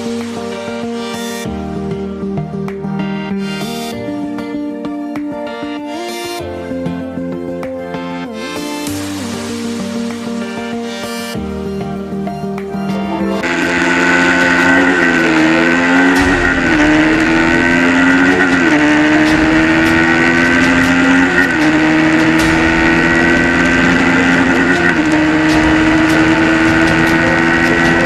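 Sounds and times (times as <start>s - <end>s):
motorcycle engine accelerating: 13.3s - 28.0s.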